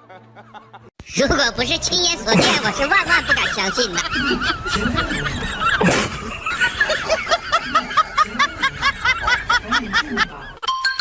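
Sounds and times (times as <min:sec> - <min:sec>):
high-pitched laughter: 0:02.4 - 0:10.7.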